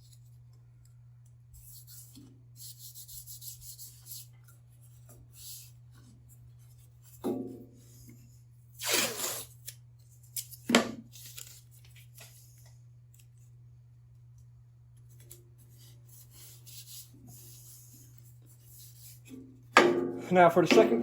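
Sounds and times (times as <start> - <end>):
tape ripping off a roll: 8.8 - 9.8
tape rubbing and rustling: 8.8 - 12.5.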